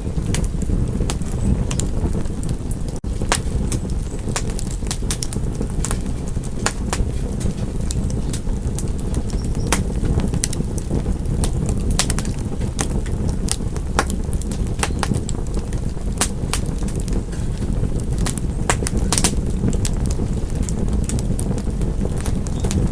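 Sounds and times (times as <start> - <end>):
fireplace fire crackling: 0.0 - 22.9.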